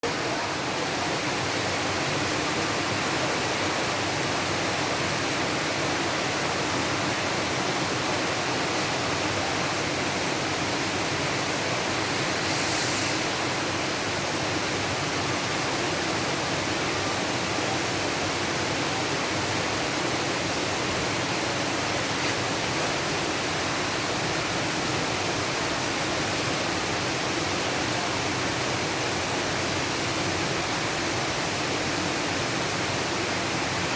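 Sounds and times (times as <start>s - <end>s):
rain falling steadily: 0.0s - 33.9s.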